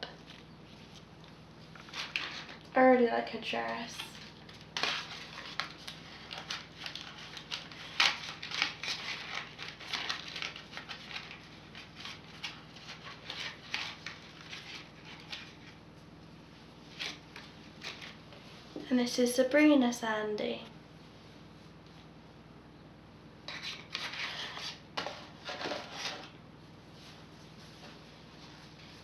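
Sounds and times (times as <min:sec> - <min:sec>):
plastic packaging clicks and rustles: 0:00.0 - 0:02.8, 0:03.6 - 0:15.8.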